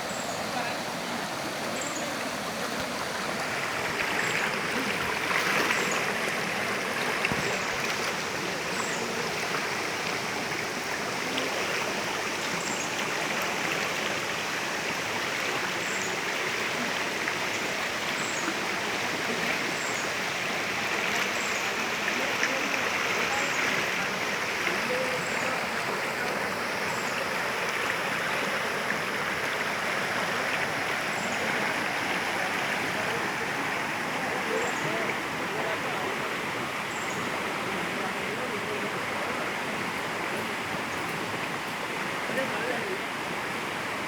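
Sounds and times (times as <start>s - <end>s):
stream of water rushing: 0.0s - 44.0s.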